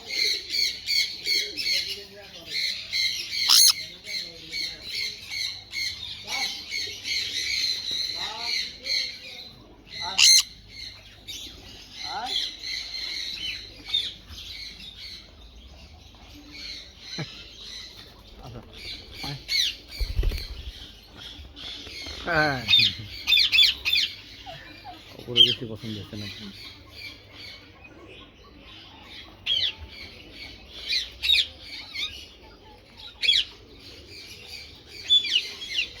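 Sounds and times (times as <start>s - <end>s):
soft bird chattering: 0.0s - 36.0s
parrot chattering and squawking: 3.0s - 3.8s, 10.1s - 10.6s.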